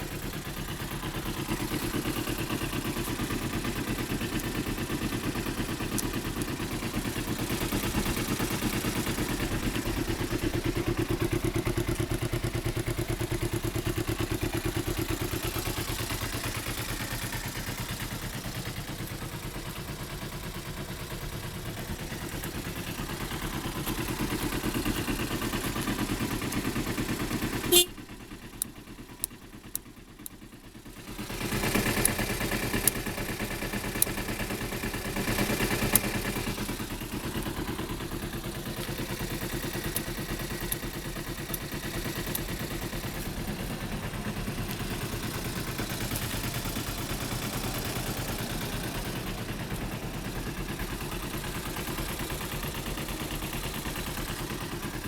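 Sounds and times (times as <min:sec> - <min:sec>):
motorcycle engine idling: 0:00.0 - 0:55.0
sharp ticks: 0:00.2 - 0:10.1, 0:28.3 - 0:30.5, 0:31.1 - 0:43.8
click: 0:04.3 - 0:04.5, 0:05.9 - 0:06.5, 0:26.5 - 0:26.7, 0:28.6 - 0:30.4, 0:32.8 - 0:33.0, 0:33.9 - 0:34.2, 0:35.8 - 0:36.1, 0:39.8 - 0:42.5.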